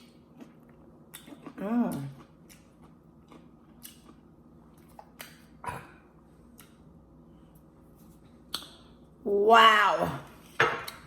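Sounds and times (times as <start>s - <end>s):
chewing food: 0.0s - 7.0s.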